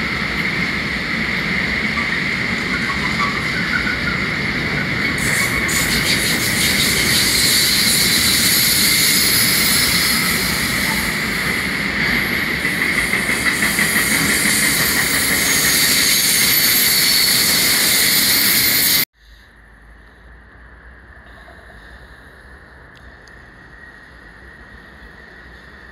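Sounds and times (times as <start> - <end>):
train wheels on rails: 0.0 - 19.1
high wheel squeal: 2.0 - 11.3, 13.2 - 19.1.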